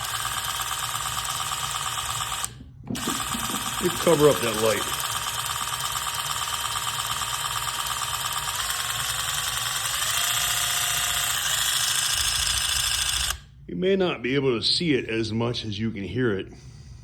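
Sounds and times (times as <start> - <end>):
impact driver motor whine: 0.0 - 13.6.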